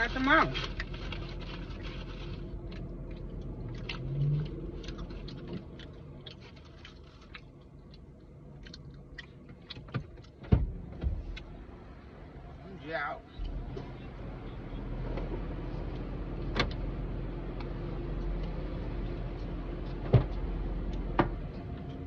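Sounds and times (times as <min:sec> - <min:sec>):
low steady hum: 0:00.0 - 0:22.0
person chewing food: 0:00.6 - 0:10.4.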